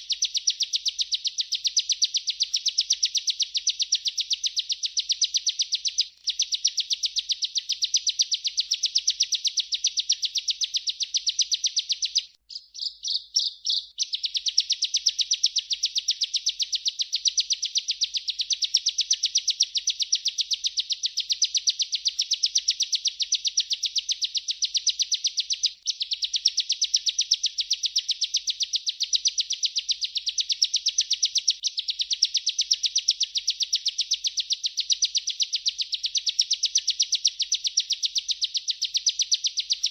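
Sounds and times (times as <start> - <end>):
bird trilling song: 0.0 - 39.9.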